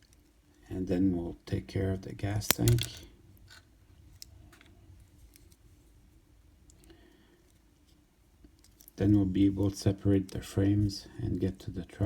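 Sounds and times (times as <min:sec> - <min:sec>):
small plastic parts clicking: 0:02.5 - 0:03.6.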